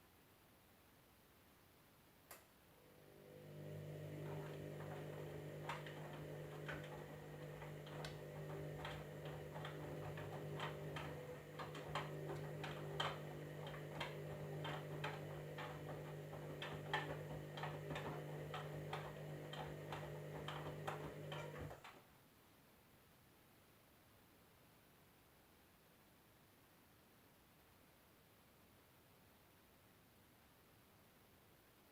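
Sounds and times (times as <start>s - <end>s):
washing machine humming: 2.8s - 22.0s
irregular clicking: 3.6s - 22.0s.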